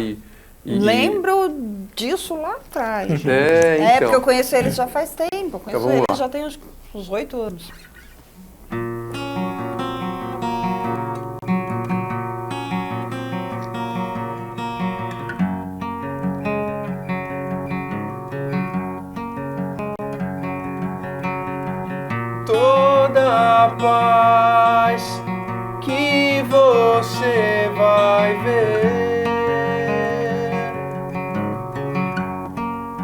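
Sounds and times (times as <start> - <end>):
acoustic guitars strumming: 0.0 - 1.5, 7.8 - 33.0
man singing: 22.4 - 31.1.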